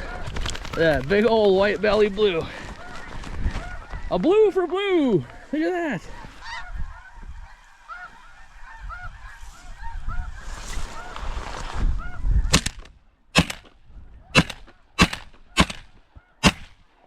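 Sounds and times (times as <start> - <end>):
geese honking: 1.7 - 11.2
shotgun shots: 12.5 - 13.8, 14.4 - 16.9.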